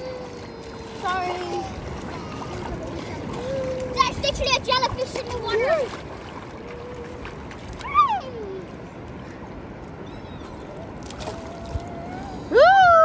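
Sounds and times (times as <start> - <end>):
child's voice: 0.0 - 6.0
beach surf: 0.0 - 13.0
wind: 0.0 - 13.0.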